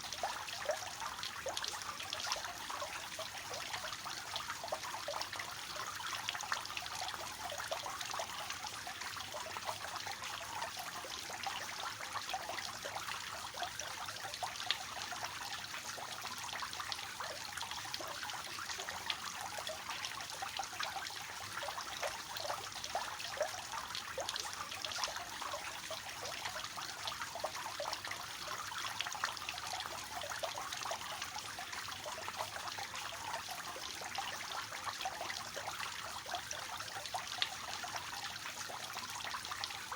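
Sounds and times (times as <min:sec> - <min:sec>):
fountain water splashing: 0:00.0 - 0:04.8.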